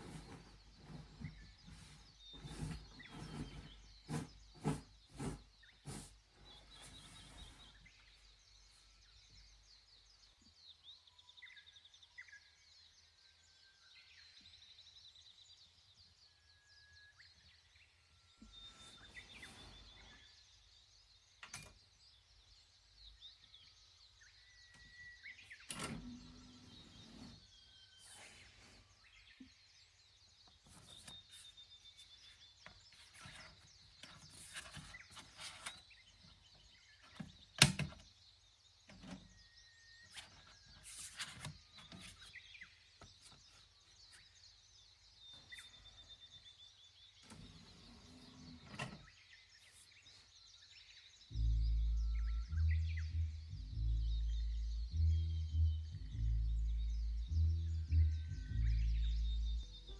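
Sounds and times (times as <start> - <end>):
birdsong chirps and trills: 0.0 - 59.9.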